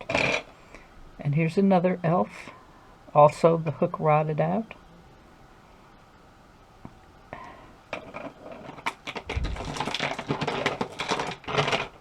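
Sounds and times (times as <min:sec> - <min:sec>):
ornaments rustling and clinking in box: 0:08.0 - 0:12.0.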